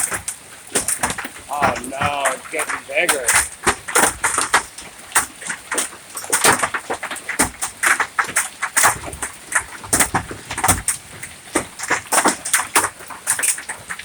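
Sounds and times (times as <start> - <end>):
hailstones hitting hard surfaces: 0.0 - 14.0.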